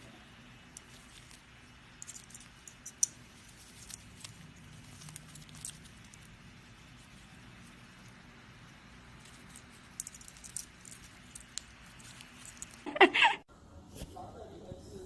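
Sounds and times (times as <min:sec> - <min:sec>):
pet bird clicks and scratches: 0:00.7 - 0:08.2, 0:09.0 - 0:12.9.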